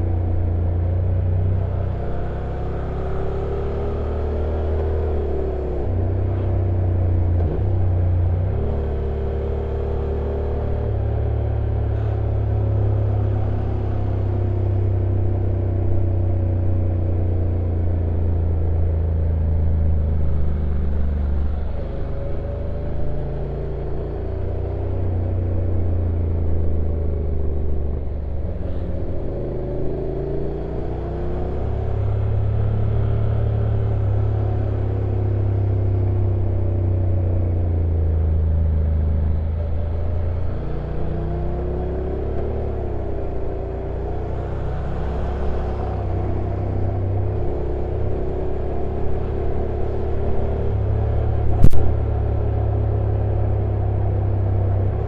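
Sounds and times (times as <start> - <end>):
motorcycle engine rumbling: 31.0 - 55.0.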